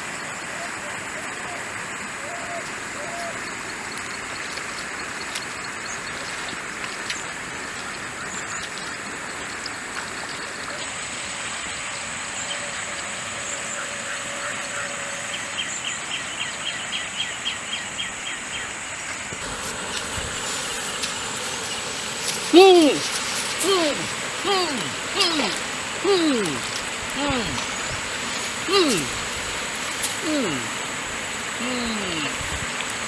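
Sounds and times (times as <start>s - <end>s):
stream rushing: 0.0s - 16.2s, 19.2s - 33.0s
high insect whine: 0.0s - 33.0s
animal calling rapidly: 20.0s - 32.4s.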